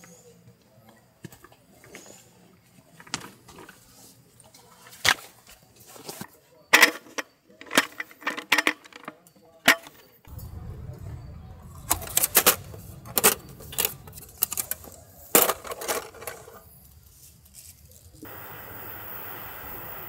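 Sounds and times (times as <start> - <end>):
sharp clicks and clattering knocks: 9.7 - 16.6
low rumble: 10.3 - 15.4.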